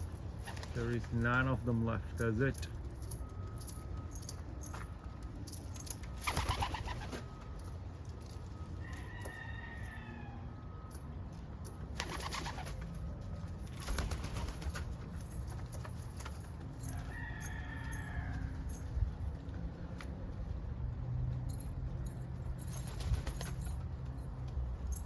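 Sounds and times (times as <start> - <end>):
rustles and clicks: 11.2 - 25.0.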